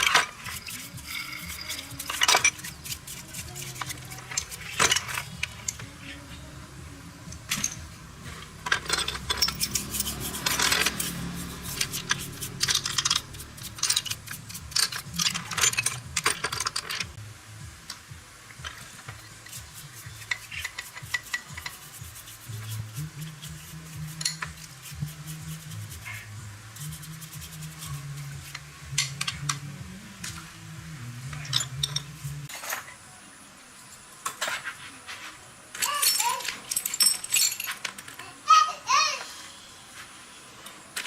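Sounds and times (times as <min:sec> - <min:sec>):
something being rubbed: 0:00.0 - 0:05.3, 0:09.3 - 0:15.4, 0:19.3 - 0:28.7
hand tools clinking and scraping: 0:00.0 - 0:06.5, 0:07.3 - 0:17.2, 0:18.6 - 0:30.4, 0:31.2 - 0:33.0, 0:34.2 - 0:38.7.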